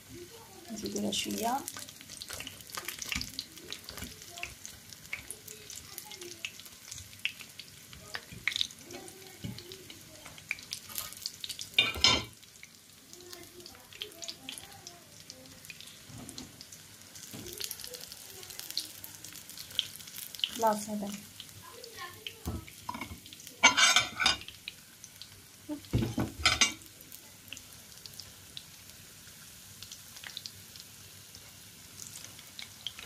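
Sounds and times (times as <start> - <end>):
food frying in hot oil: 0.0 - 33.0.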